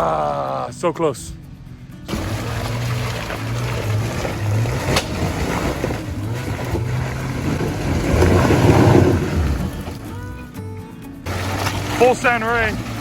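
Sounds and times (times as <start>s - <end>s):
car engine under throttle: 2.1s - 10.1s.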